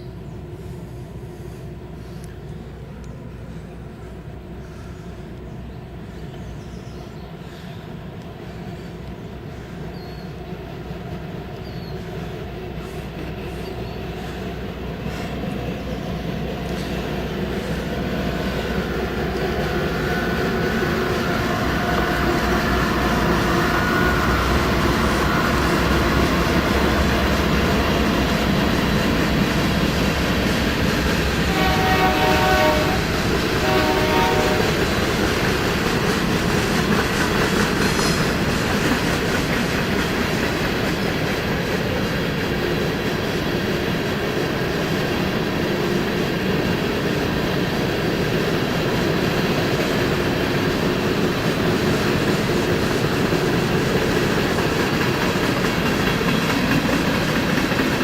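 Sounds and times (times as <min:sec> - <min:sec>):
train wheels rumbling on rails: 0:00.0 - 0:58.0
locomotive air horn blasts: 0:31.5 - 0:34.8.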